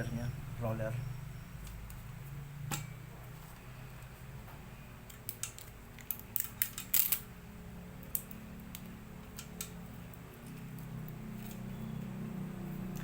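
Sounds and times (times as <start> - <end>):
low steady hum: 0.0 - 13.0
small hard parts clicking: 5.1 - 7.3.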